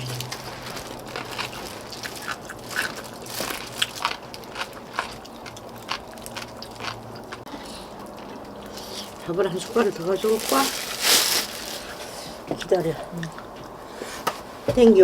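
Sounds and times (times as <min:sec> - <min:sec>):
chewing and slurping: 0:00.0 - 0:10.2.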